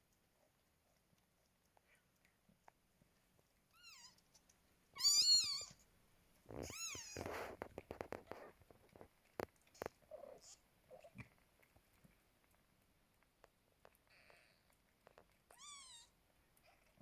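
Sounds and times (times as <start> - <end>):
kittens mewing: 5.0 - 5.8, 6.5 - 7.7.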